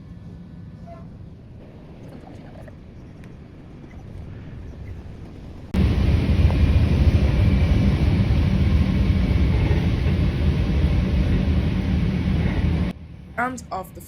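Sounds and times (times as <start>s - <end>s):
train rumbling: 4.7s - 14.0s.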